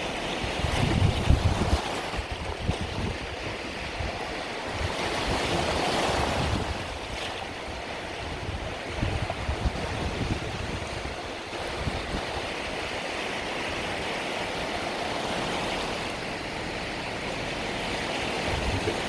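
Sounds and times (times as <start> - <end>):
wind buffeting microphone: 0.0 - 14.2, 17.8 - 19.0
sea waves washing onto beach: 0.0 - 19.0.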